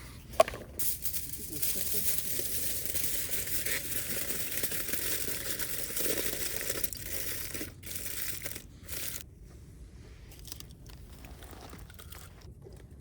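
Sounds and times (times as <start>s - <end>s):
scattered handling noises: 0.2s - 9.2s
wrapping material crinkling: 1.0s - 9.2s.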